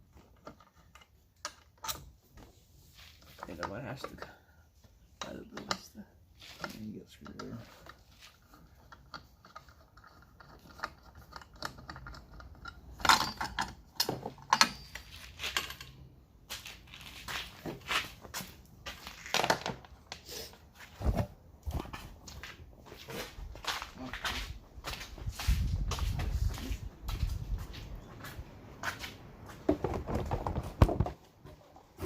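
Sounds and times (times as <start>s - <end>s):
clicks and scrapes of small parts: 0.2s - 2.1s, 5.2s - 16.0s.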